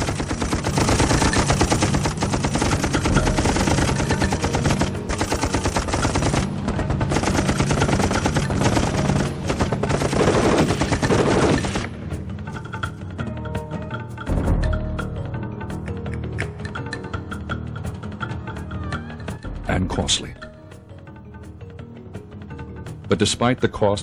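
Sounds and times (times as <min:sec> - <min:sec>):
machine-gun fire: 0:00.0 - 0:12.0.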